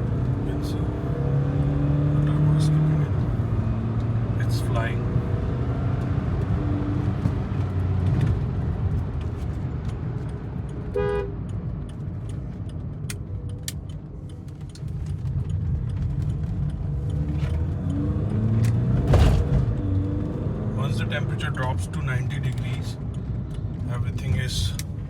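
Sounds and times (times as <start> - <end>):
car engine and road noise: 0.0 - 25.0
car horn toot: 10.9 - 11.4.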